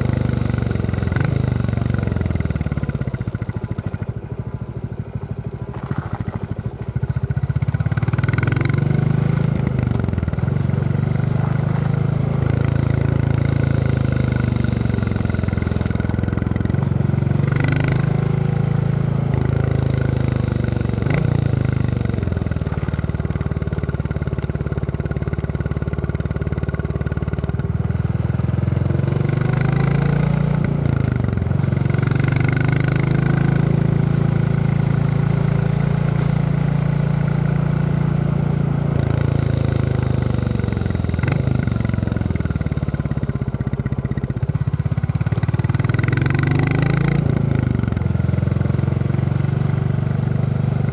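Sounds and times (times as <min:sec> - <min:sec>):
motorcycle engine thumping: 0:19.2 - 0:25.3.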